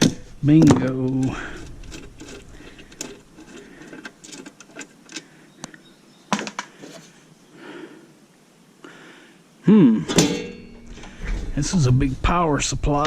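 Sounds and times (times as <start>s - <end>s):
hand tools clicking and knocking: 0.0s - 7.0s, 10.1s - 11.2s.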